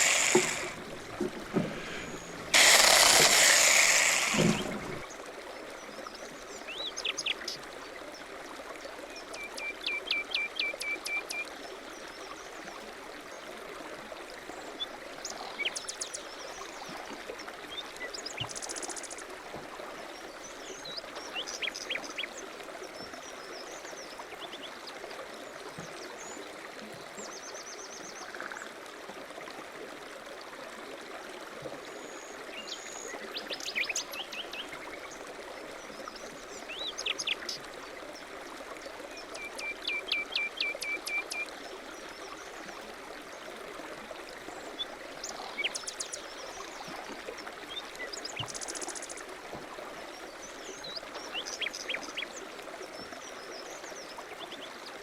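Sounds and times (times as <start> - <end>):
steady hiss: 0.0 - 5.0.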